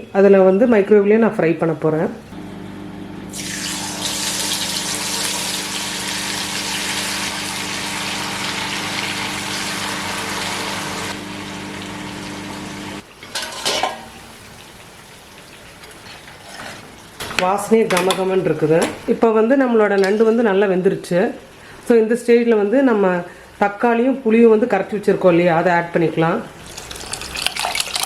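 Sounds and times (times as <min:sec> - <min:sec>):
microwave oven humming: 0:02.3 - 0:13.0.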